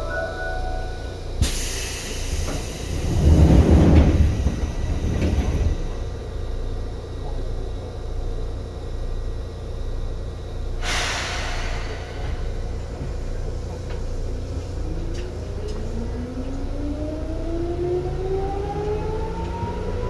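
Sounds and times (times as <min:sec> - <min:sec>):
train running rumble: 0:00.0 - 0:20.0
hiss burst: 0:10.8 - 0:12.6.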